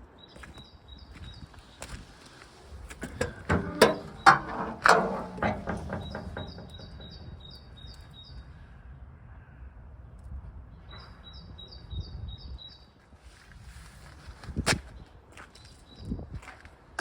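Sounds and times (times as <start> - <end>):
knocks and clunks: 3.0 - 7.7.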